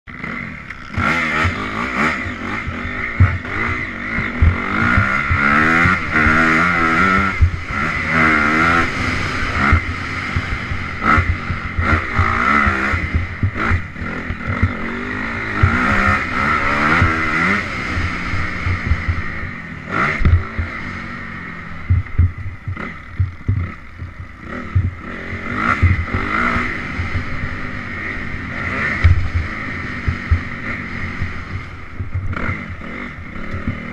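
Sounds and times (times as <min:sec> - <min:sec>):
dirt bike engine revving: 0:00.1 - 0:33.9
sharp knocks: 0:21.9 - 0:25.0.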